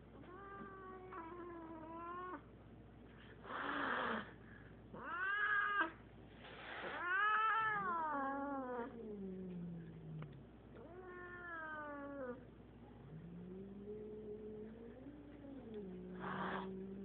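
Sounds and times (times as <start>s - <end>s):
cat hissing: 3.4s - 4.4s, 6.4s - 7.9s, 16.1s - 16.9s.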